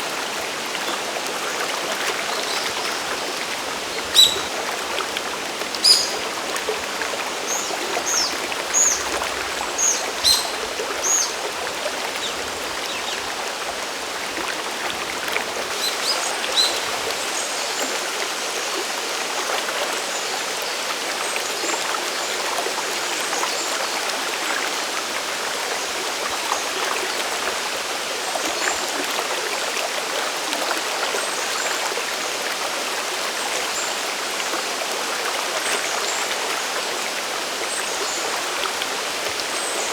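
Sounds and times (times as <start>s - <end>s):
waterfall and stream rushing: 0.0s - 39.9s
bird chirping: 4.1s - 4.6s, 5.8s - 6.2s, 9.8s - 11.4s.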